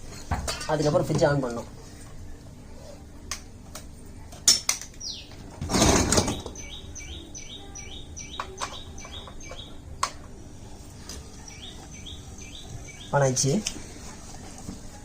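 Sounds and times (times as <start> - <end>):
bird chirping: 5.0 - 9.8, 11.4 - 13.6.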